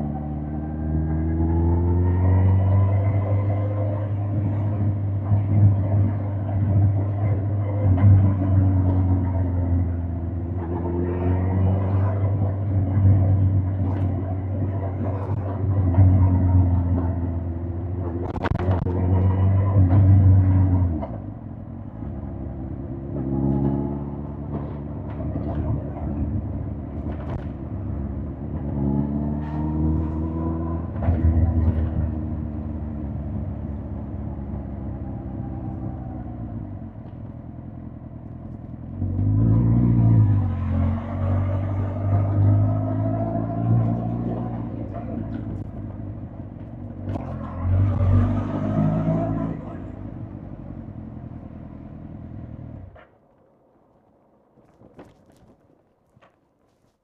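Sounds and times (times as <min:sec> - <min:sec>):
motorcycle engine revving: 0:23.0 - 0:27.6, 0:28.4 - 0:36.6, 0:46.7 - 0:50.3.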